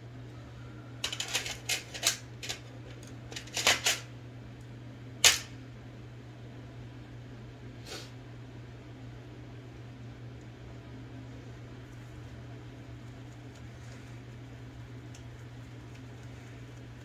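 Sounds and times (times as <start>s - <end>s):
typewriter mechanism clicking: 3.4s - 4.0s.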